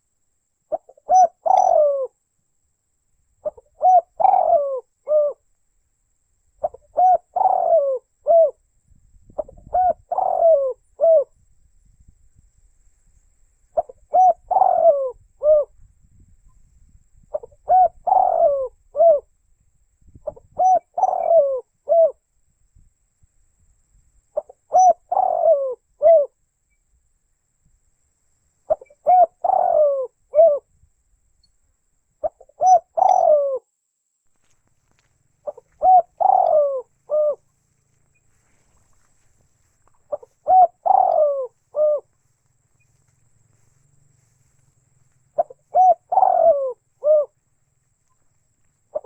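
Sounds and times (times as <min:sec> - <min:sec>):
dove cooing: 0:00.7 - 0:02.2, 0:03.4 - 0:05.5, 0:06.6 - 0:08.6, 0:09.3 - 0:11.4, 0:13.7 - 0:15.8, 0:17.2 - 0:19.3, 0:20.2 - 0:22.2, 0:24.4 - 0:26.4, 0:28.7 - 0:30.7, 0:32.2 - 0:33.7, 0:35.0 - 0:49.0.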